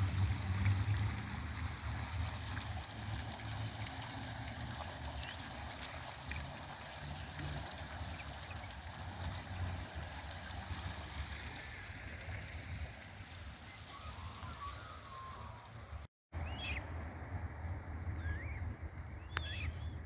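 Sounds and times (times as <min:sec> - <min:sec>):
bird calls: 0:05.1 - 0:08.7, 0:13.7 - 0:15.7, 0:18.2 - 0:20.0.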